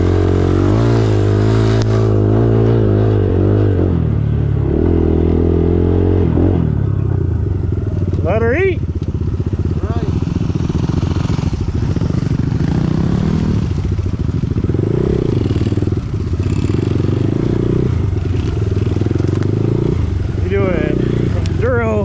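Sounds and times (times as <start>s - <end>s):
dirt bike engine revving: 0.0s - 22.0s
bike rattling: 6.8s - 22.0s.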